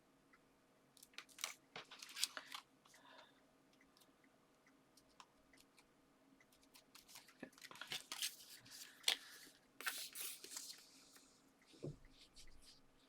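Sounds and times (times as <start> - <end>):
paper rustling: 1.4 - 2.6, 7.0 - 10.9.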